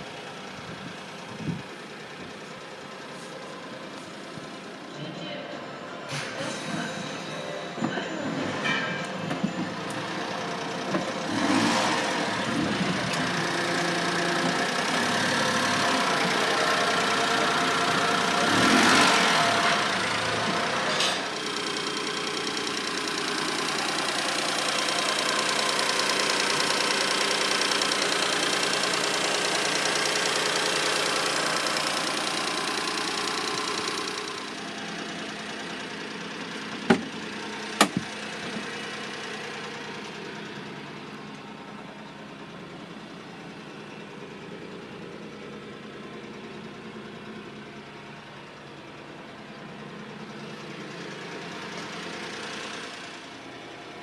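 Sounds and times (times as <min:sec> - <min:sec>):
small truck engine idling: 0:00.0 - 0:54.0
sharp knocks: 0:37.8 - 0:38.1.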